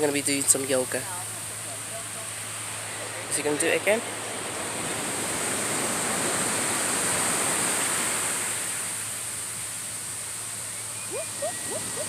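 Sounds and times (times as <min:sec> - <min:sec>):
ocean wave washing up beach: 0:04.4 - 0:10.2.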